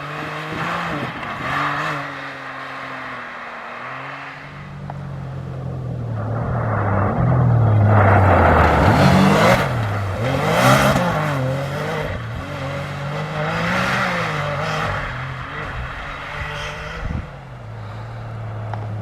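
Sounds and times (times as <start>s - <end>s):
vehicle engine revving hard: 7.6s - 19.0s.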